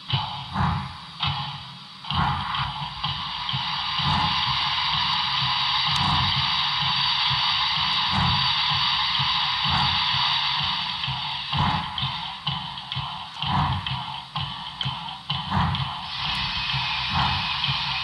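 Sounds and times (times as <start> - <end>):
steam hiss from small speaker: 0.0 - 18.0
low rumbling pulses: 14.8 - 18.0.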